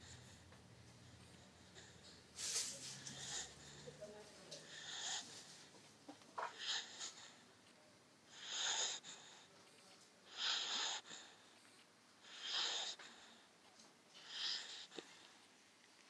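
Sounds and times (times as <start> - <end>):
dog snoring: 8.3 - 9.6, 10.3 - 13.4, 14.2 - 15.0.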